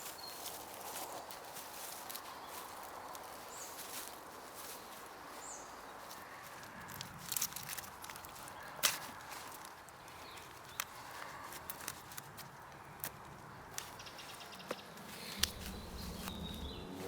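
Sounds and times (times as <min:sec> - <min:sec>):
dry leaves rustling and crackling: 0:00.0 - 0:17.0
rustles and snaps: 0:00.0 - 0:17.0
wind hissing: 0:15.1 - 0:17.0.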